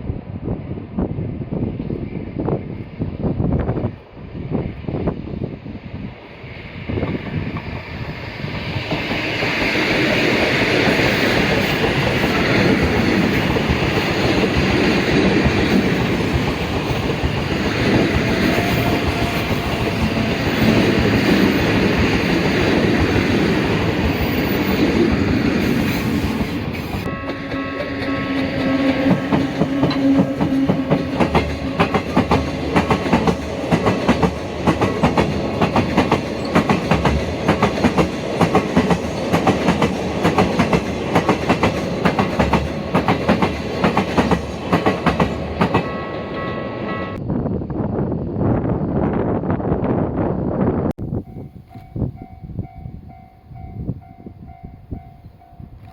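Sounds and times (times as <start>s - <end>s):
train wheels rumbling: 1.1s - 47.3s
wheels clickety-clack over rail joints: 7.0s - 46.6s.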